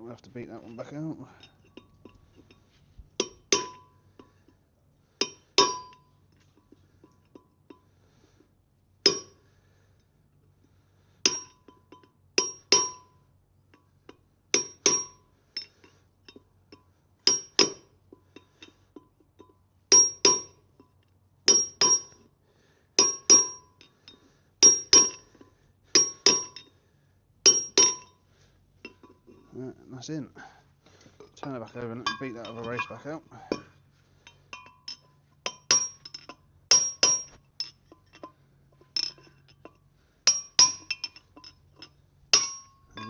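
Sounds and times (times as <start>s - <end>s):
hammer striking metal: 26.0s - 26.6s, 27.5s - 28.1s, 42.4s - 43.0s.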